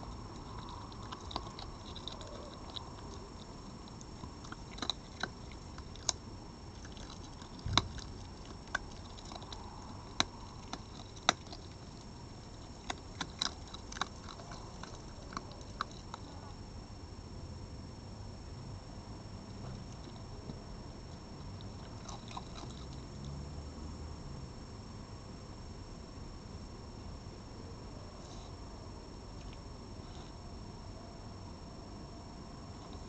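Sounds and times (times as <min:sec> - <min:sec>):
animal crunching food: 0:00.0 - 0:16.6, 0:19.5 - 0:23.4, 0:32.7 - 0:33.0.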